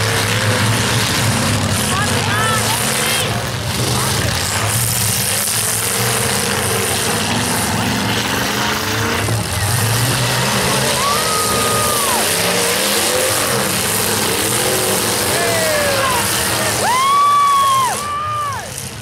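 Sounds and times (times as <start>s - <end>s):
truck engines revving: 0.0s - 19.0s.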